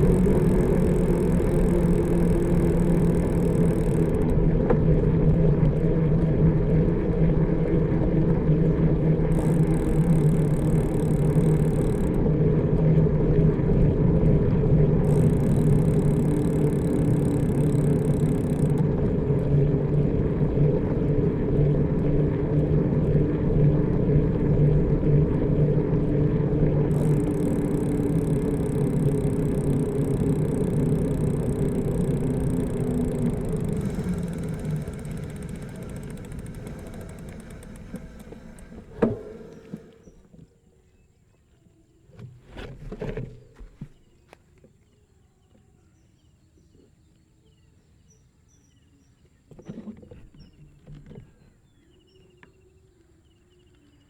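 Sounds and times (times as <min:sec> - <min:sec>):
vehicle engine hum: 0:00.0 - 0:40.3.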